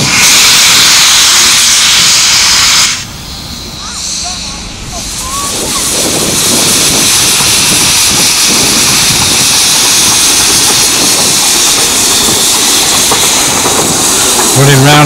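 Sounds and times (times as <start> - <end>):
locomotive steam hiss: 0.0 - 15.0
wind buffeting microphone: 4.9 - 15.0.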